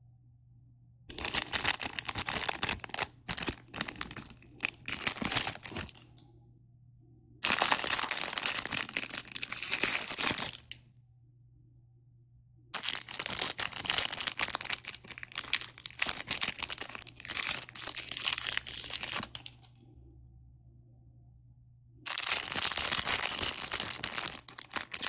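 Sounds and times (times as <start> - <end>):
plastic packaging crinkling and tearing: 1.1 - 6.1, 7.4 - 10.8, 12.8 - 19.7, 22.1 - 25.0.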